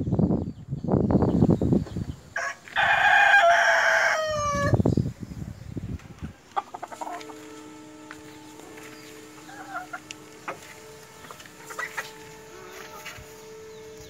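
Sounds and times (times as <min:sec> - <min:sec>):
rooster crowing: 0:02.4 - 0:04.8, 0:06.6 - 0:14.0
bursts of rough noise: 0:06.8 - 0:14.0.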